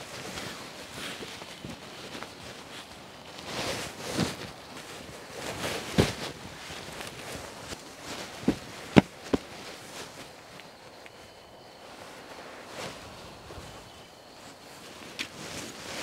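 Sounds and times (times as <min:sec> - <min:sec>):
footsteps: 0:00.0 - 0:16.0
rustling: 0:00.0 - 0:16.0
heavy thuds: 0:03.4 - 0:10.2.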